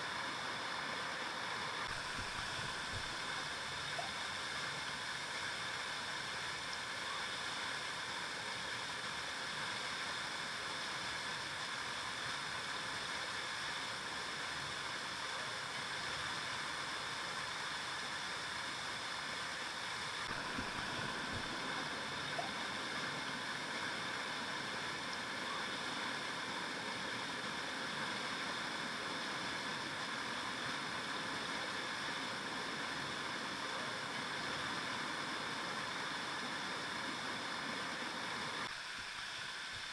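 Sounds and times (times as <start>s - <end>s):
river water flowing over rocks: 18.8s - 39.9s.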